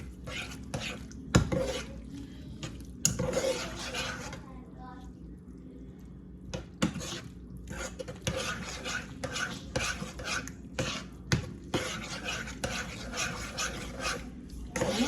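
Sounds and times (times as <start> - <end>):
spoon scraping a pot: 0.0 - 2.1, 3.0 - 4.4, 6.5 - 15.0.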